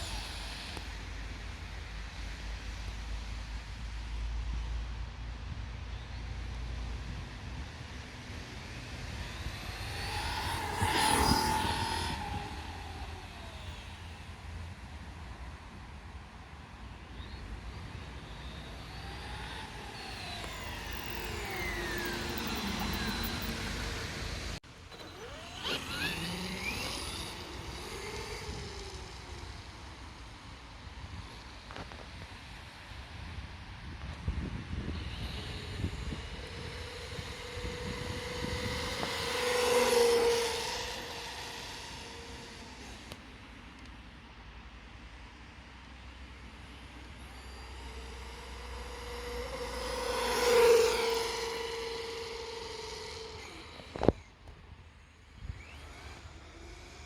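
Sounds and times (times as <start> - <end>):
electric motor whine: 0.0 - 1.2, 8.3 - 15.8, 16.9 - 32.1, 33.2 - 44.0, 46.2 - 57.0
wind rumble on microphone: 0.0 - 24.6, 25.2 - 43.2.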